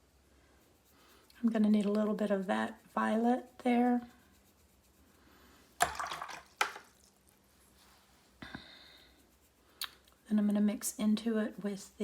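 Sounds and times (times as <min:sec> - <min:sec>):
paintbrush faint scrape: 0:00.5 - 0:05.8, 0:07.0 - 0:09.8
paintbrush swishing in water: 0:05.8 - 0:08.0.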